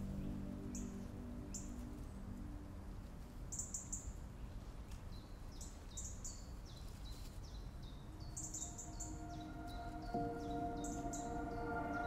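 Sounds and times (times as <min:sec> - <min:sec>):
small bird chirping: 0:03.4 - 0:12.0.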